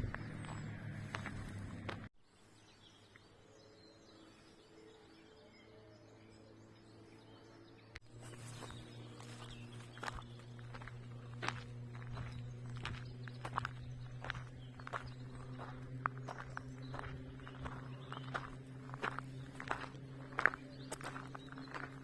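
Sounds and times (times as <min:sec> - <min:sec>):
footsteps on forest path: 0:00.0 - 0:02.1, 0:08.0 - 0:22.0
faint birds chirping: 0:00.0 - 0:22.0.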